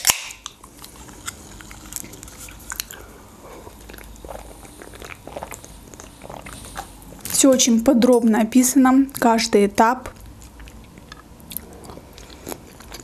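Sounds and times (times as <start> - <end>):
wet chewing mouth sounds: 0.4 - 7.5, 10.0 - 13.0.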